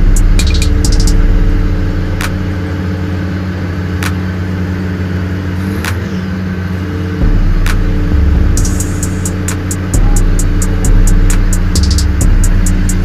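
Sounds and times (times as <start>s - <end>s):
low rumble: 0.0s - 5.3s, 7.2s - 13.0s
train engine drone: 0.0s - 13.0s
sharp clicks: 0.4s - 1.2s.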